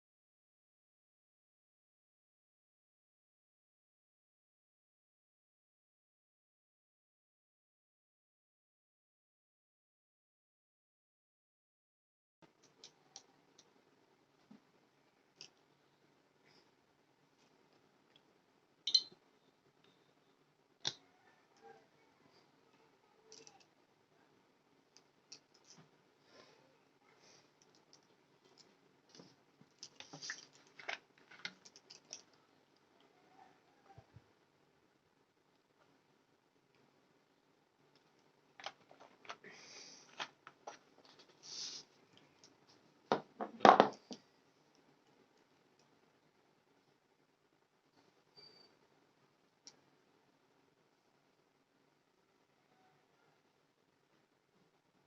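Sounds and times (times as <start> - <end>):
small clicks: 23.3 - 23.7.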